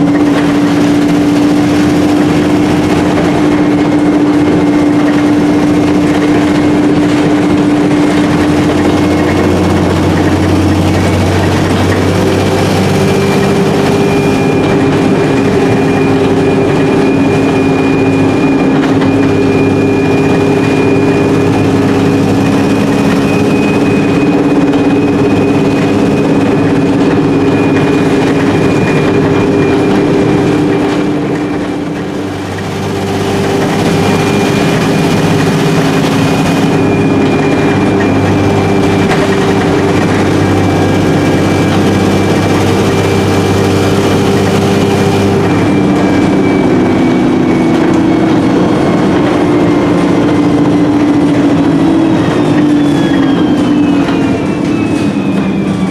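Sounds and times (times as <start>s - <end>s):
bus diesel engine running: 0.0s - 55.9s
high gearbox whine: 0.0s - 55.9s.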